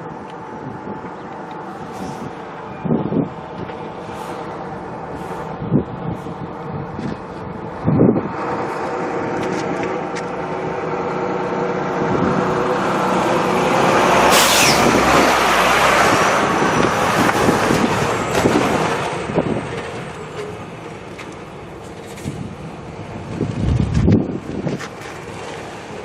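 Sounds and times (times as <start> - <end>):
jet engines roaring past: 0.0 - 26.0
high whine sliding down: 7.5 - 17.6.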